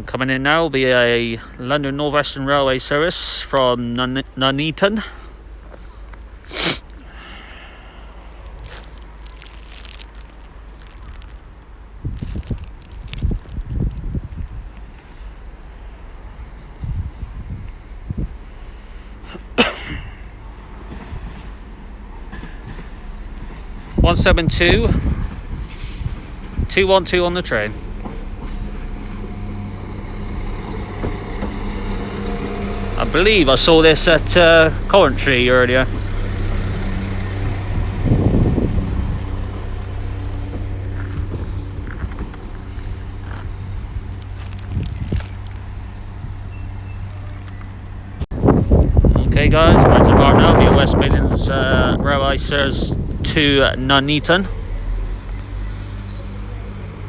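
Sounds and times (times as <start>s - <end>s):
train rumbling: 0.0s - 57.0s
rush of noise: 23.9s - 57.0s.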